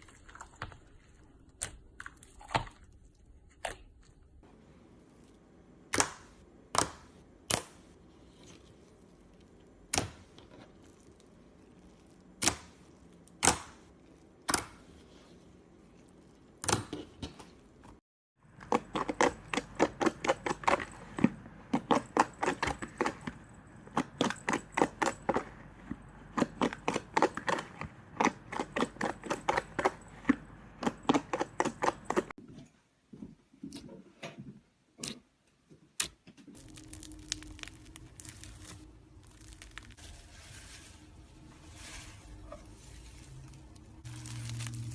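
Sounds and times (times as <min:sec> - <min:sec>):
slime clicks and crackles: 0:36.0 - 0:40.0, 0:44.0 - 0:44.9.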